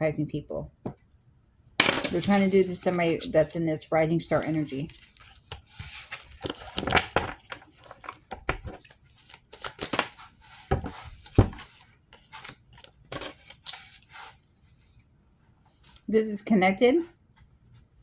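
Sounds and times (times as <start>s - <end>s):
cards being shuffled: 1.8s - 3.6s, 4.3s - 14.4s.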